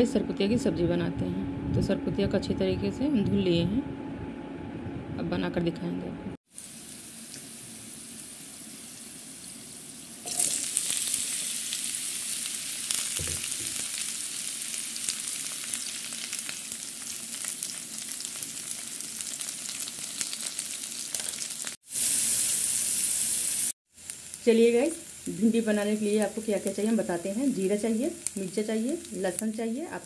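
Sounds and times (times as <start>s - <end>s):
food sizzling in hot oil: 6.5s - 30.0s.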